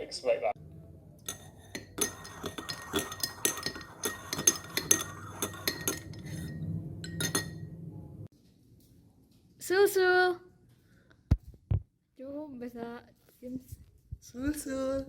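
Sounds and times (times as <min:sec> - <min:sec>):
low hum: 0:00.6 - 0:08.3
dishes and cutlery clinking: 0:01.2 - 0:07.7.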